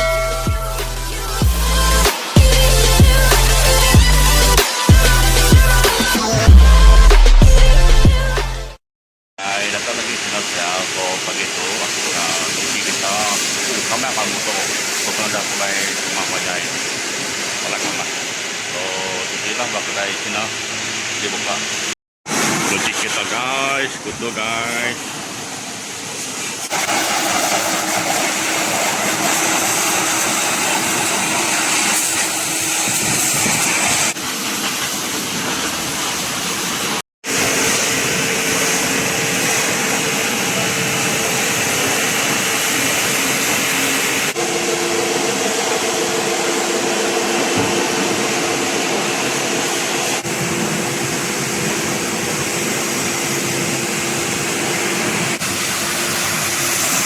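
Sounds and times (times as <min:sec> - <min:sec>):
pressure washer spray hiss: 0:09.6 - 0:19.6, 0:26.0 - 0:57.0
pump humming: 0:26.7 - 0:34.6, 0:37.3 - 0:57.0.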